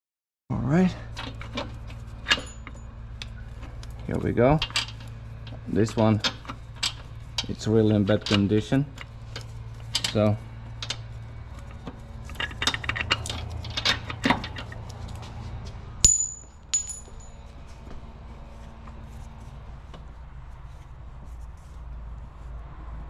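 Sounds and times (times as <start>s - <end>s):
metal tools clattering: 16.0s - 17.4s
ringing metal clinks: 16.0s - 17.4s.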